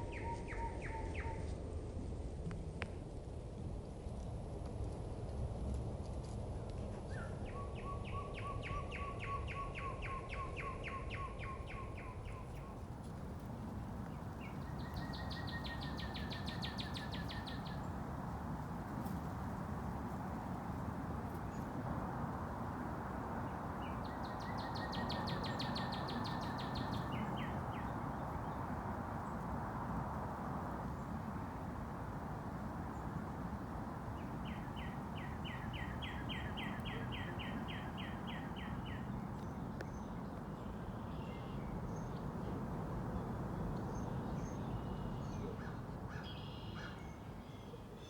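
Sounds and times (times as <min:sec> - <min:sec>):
low background noise: 0:08.8 - 0:48.0
songbird trilling: 0:14.0 - 0:18.0, 0:23.7 - 0:28.6, 0:44.8 - 0:47.0.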